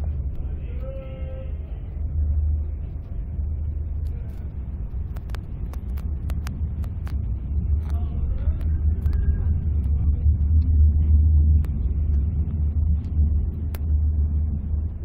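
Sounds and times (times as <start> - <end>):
train coach rumbling: 0.0 - 15.0.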